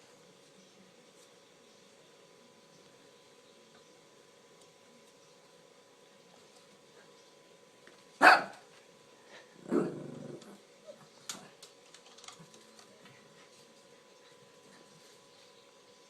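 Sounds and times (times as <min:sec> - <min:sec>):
dog barking: 0:08.2 - 0:08.6.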